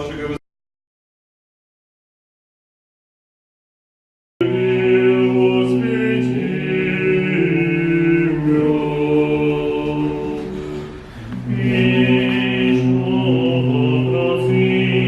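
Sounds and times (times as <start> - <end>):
choir singing a chant: 4.4 - 15.0.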